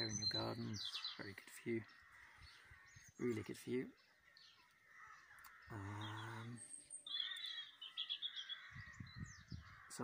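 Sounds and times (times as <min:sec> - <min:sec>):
songbird twittering: 0:00.0 - 0:10.0.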